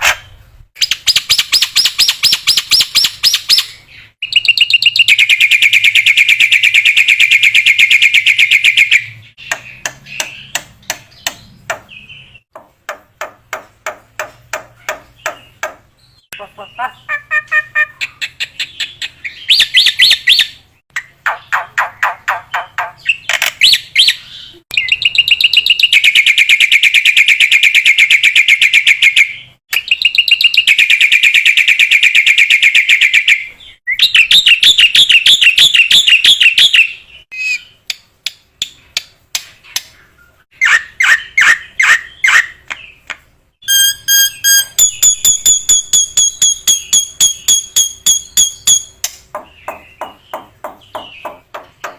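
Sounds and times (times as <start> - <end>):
bird high whistled notes: 43.6 - 49.0.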